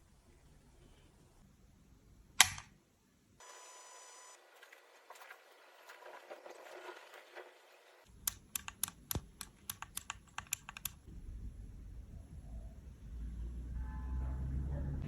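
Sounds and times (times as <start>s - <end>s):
sharp clicks or taps: 2.4s - 2.7s
low rumble: 11.1s - 15.0s.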